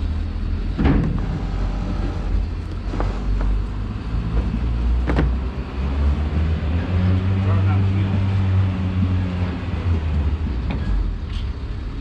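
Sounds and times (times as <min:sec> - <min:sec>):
engine running with deep hum: 0:00.0 - 0:12.0.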